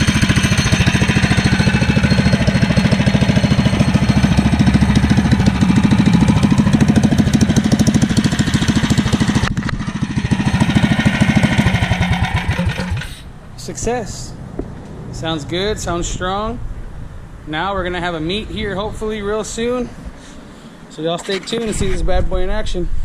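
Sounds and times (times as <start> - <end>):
single-cylinder engine running: 0.0 - 13.5.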